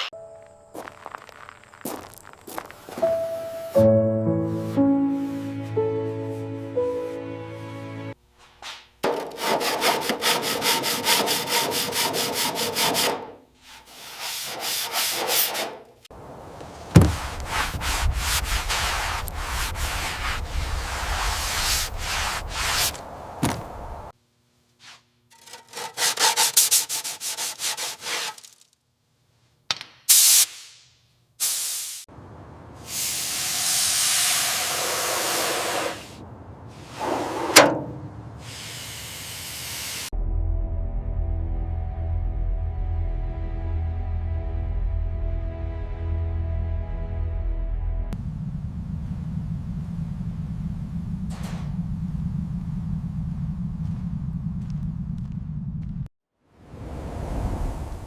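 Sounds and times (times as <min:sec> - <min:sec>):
sanding and scraping metal: 0:09.2 - 0:15.8, 0:17.5 - 0:23.0, 0:24.8 - 0:28.6
deep rumble: 0:46.6 - 0:56.1.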